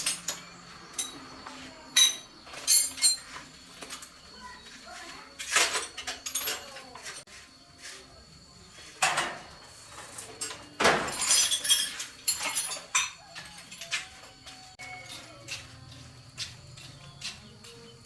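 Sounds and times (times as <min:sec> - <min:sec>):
hard objects clinking and clattering: 0:00.0 - 0:04.2, 0:05.3 - 0:07.3, 0:09.0 - 0:15.3.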